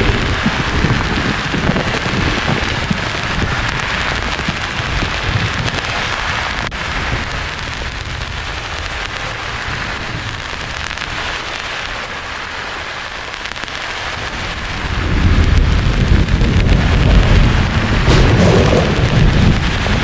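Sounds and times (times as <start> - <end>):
deep thunder rumble: 0.0 - 10.2, 14.6 - 20.0.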